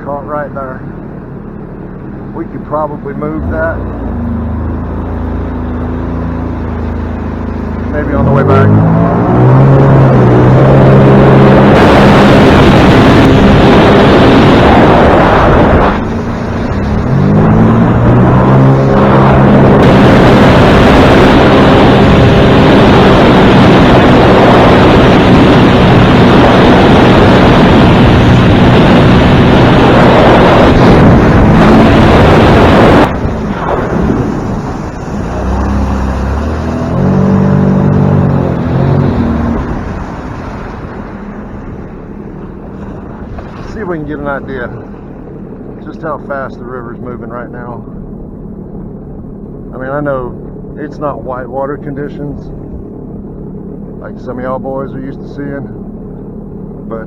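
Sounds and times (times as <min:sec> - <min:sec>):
motorboat engine running: 0:00.0 - 0:57.0
wind noise on microphone: 0:08.8 - 0:44.1.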